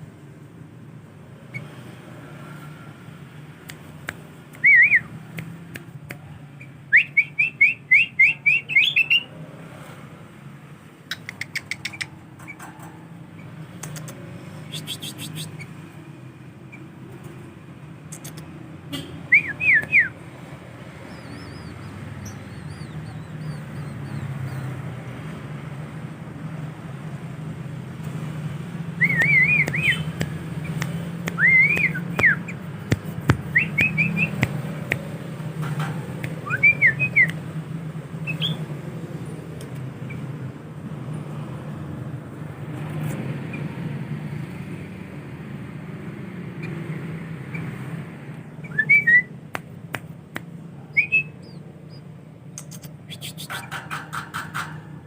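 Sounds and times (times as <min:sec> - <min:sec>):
bird whistling phrases: 0:04.6 - 0:05.1, 0:06.9 - 0:09.3, 0:14.7 - 0:15.7, 0:19.3 - 0:20.2, 0:21.0 - 0:24.7, 0:29.0 - 0:30.8, 0:31.4 - 0:32.6, 0:33.5 - 0:34.4, 0:36.4 - 0:37.3, 0:50.9 - 0:53.7.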